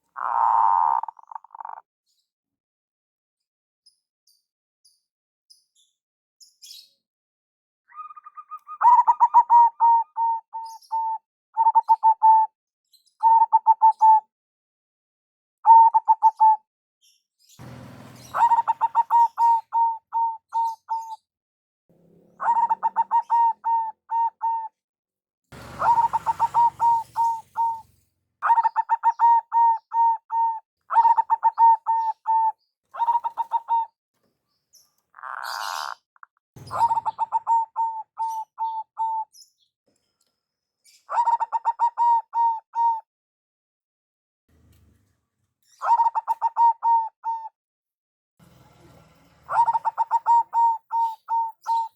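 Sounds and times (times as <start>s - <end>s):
dove staccato cooing: 0.2s - 1.8s, 8.0s - 12.5s, 17.6s - 21.0s, 22.0s - 24.7s, 25.6s - 33.9s, 36.6s - 39.2s, 41.1s - 43.0s, 45.8s - 47.5s, 49.5s - 51.9s
brief noisy burst: 17.6s - 19.0s.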